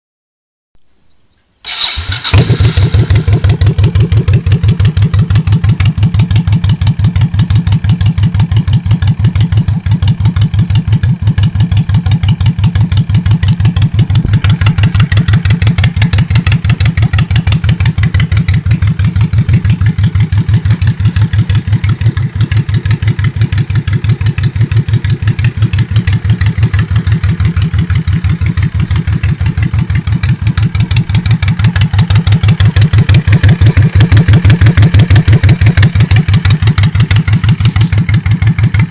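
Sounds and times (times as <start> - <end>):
motorcycle engine idling: 1.8 - 38.9.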